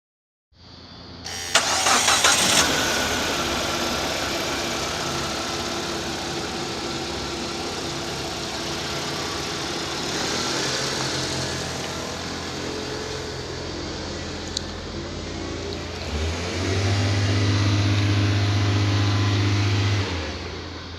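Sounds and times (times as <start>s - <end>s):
engine starter cranking: 1.3s - 4.2s
car engine idling: 1.3s - 19.1s.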